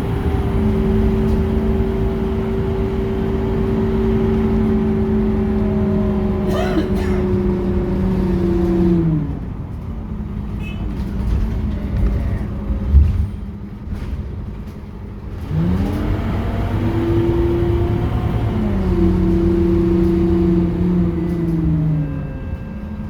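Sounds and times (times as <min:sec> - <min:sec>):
bus engine whine: 0:00.0 - 0:23.0.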